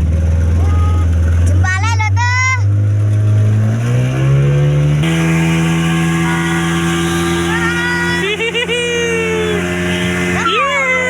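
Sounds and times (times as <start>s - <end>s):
outboard motor revving: 0.0s - 11.0s.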